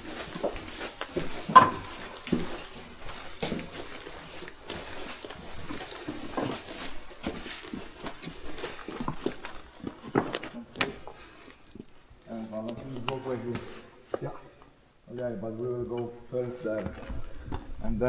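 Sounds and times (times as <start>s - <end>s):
footsteps scrambling over loose rock: 0.0s - 14.2s.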